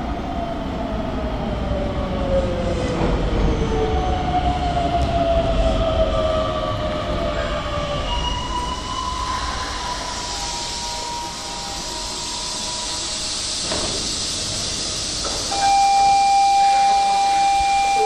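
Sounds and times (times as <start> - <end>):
train running gear whining: 0.4 - 18.0
wheels rumbling and hissing: 1.0 - 15.6
loud steady high tone: 15.5 - 18.0.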